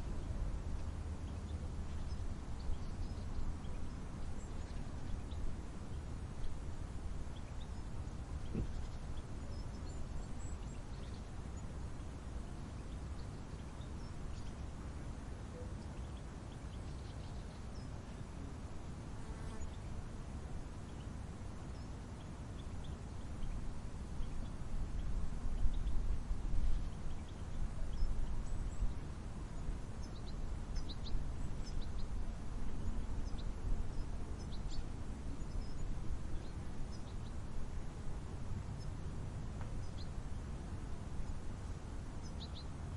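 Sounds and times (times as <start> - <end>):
faint bird chirps: 0.0 - 18.3, 19.2 - 37.5, 42.2 - 42.9.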